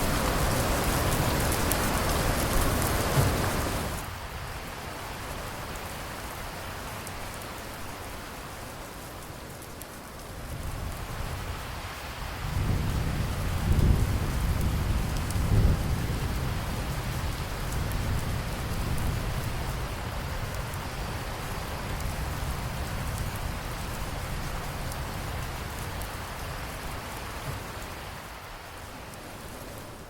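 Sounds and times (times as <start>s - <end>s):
steady rain falling: 0.0s - 30.0s
low rumble of thunder: 12.2s - 28.0s.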